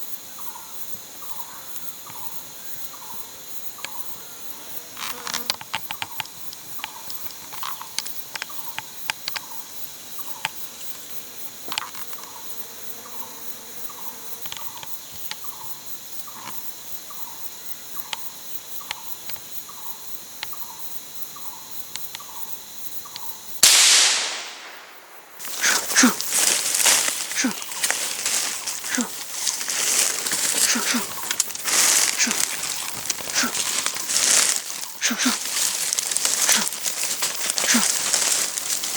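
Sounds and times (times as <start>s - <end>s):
insect buzzing: 0.4s - 23.6s, 24.4s - 38.9s
gunshot: 23.6s - 25.4s.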